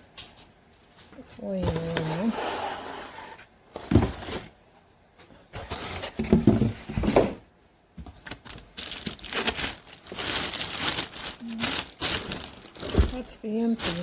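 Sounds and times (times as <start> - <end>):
packing rustling and crinkling: 8.0 - 14.0.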